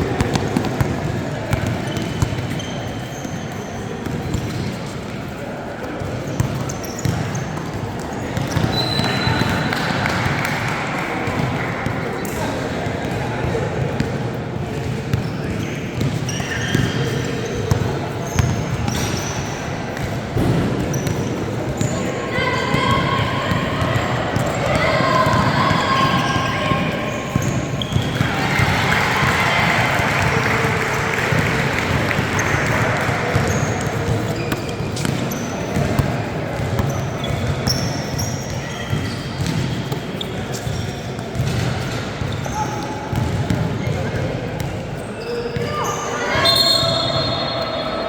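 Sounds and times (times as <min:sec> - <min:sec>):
murmur of crowd voices: 0:00.0 - 0:48.0
sneakers squeaking: 0:00.0 - 0:48.0
basketball bouncing on gym floor: 0:00.1 - 0:04.8, 0:11.3 - 0:12.0, 0:14.8 - 0:22.0, 0:31.1 - 0:44.9.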